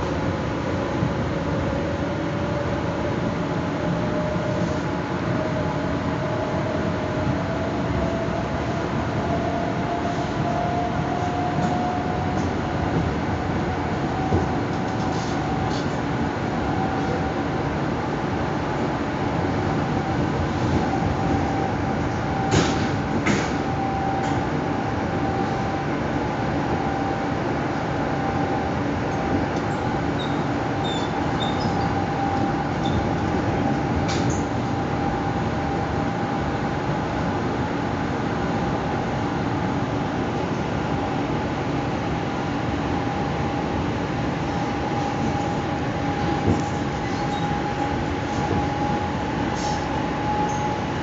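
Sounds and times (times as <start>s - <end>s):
constant train hum: 0.0s - 51.0s
train wheels rumbling on rails: 0.0s - 51.0s
faint high squeaks: 30.2s - 32.0s, 47.0s - 47.6s.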